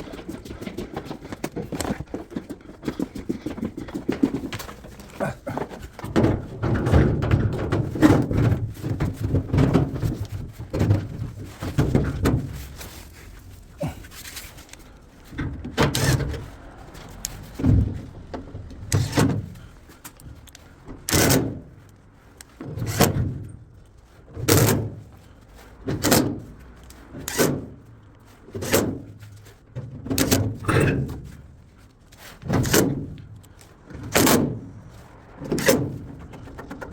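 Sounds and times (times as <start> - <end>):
dense clatter: 0.0 - 21.8.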